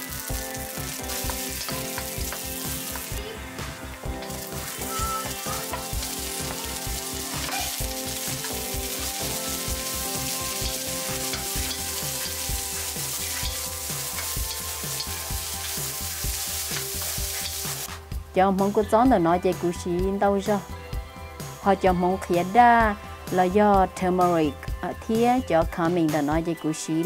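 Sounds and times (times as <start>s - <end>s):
onions sizzling in oil: 0.0s - 18.0s.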